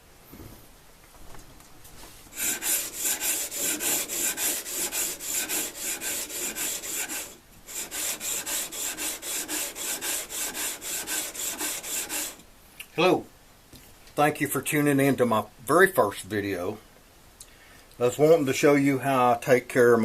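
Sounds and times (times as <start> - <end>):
blade rubbing on sandpaper: 2.4 - 12.4.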